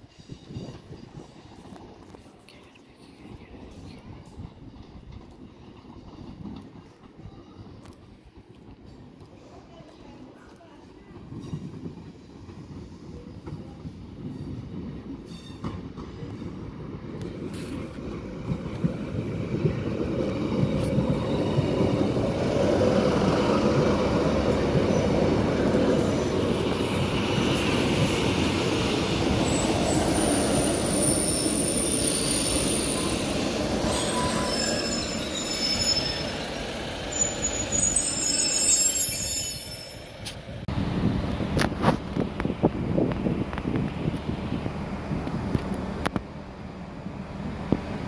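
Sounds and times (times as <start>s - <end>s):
train brakes and wheels squealing: 0.0s - 2.2s, 11.0s - 18.0s, 20.2s - 40.6s
diesel train rumble: 0.0s - 48.0s.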